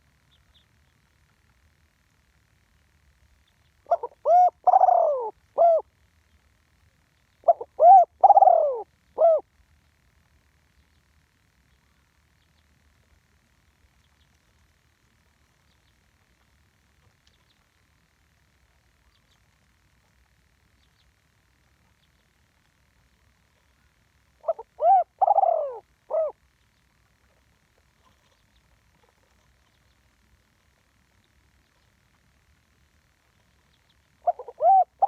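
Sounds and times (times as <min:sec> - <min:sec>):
dove cooing: 0:03.8 - 0:05.9, 0:07.4 - 0:09.5, 0:24.4 - 0:26.5, 0:34.2 - 0:35.0.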